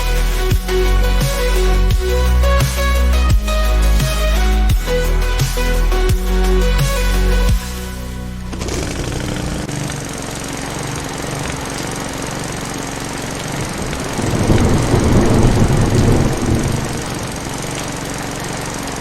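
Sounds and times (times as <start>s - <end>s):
lawn mower engine chugging: 8.5s - 19.0s.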